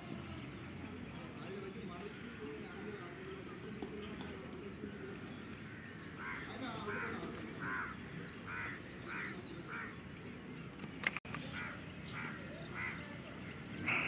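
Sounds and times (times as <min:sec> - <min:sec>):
bird calling: 0:11.4 - 0:14.0.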